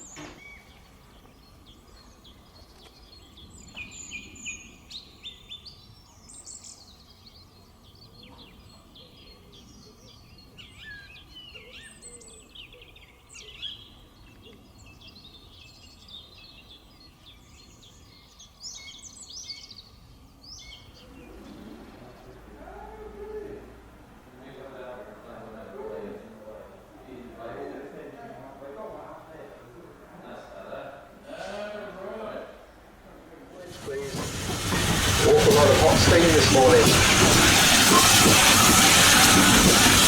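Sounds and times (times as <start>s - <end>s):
small birds chirping: 0.0s - 22.6s.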